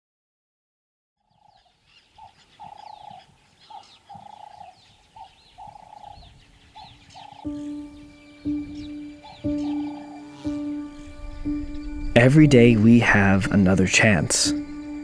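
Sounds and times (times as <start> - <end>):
high bird chirps: 1.3 - 12.9.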